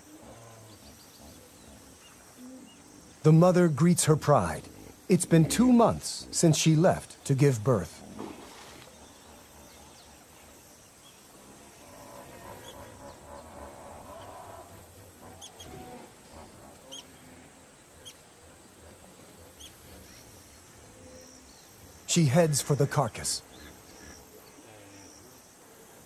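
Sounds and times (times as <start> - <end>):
low hiss: 0.0 - 26.0
soft animal call: 11.6 - 18.2.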